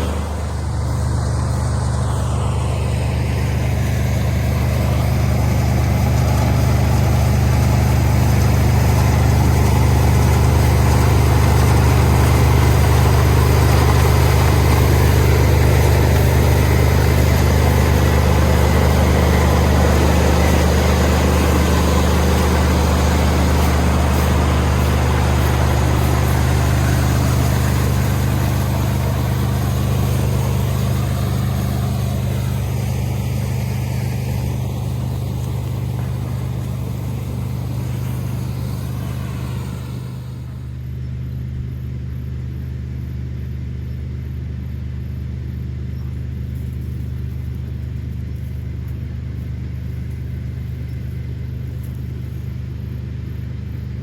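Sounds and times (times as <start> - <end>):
harsh mechanical rush: 0.0 - 40.8
diesel engine humming: 0.0 - 54.0.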